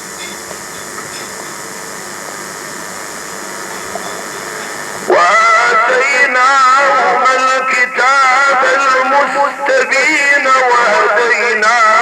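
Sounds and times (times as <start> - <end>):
steady hissing noise: 0.0 - 12.0
man chanting melodically: 5.1 - 12.0.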